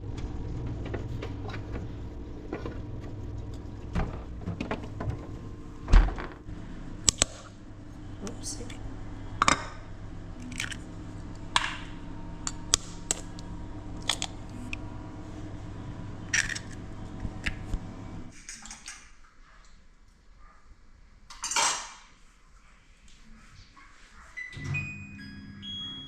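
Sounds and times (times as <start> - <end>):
steady hum: 0.0 - 18.3
metal utensils clinking on pots: 21.3 - 21.9.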